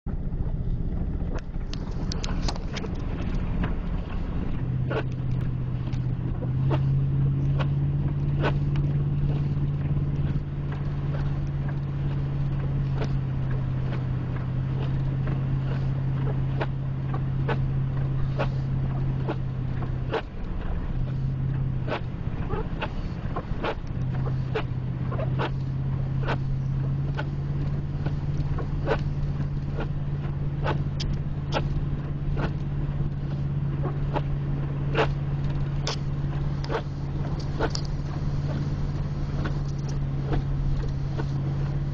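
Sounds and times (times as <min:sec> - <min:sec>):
truck engine and road rumble: 0:00.0 - 0:41.9
sharp ticks: 0:35.0 - 0:38.6.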